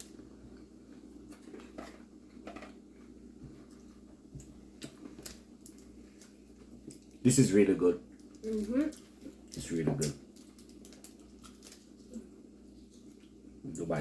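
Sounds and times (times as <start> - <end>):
people chewing chocolate: 0.0 - 7.4, 8.0 - 13.9.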